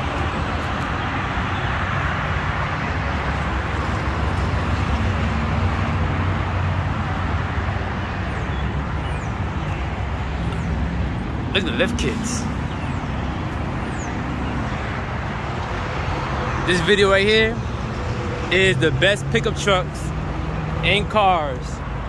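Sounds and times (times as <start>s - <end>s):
road noise rushing: 0.0s - 22.0s.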